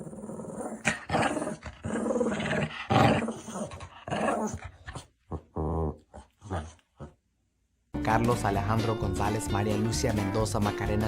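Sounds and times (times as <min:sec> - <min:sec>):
dog growling: 0:00.0 - 0:07.2.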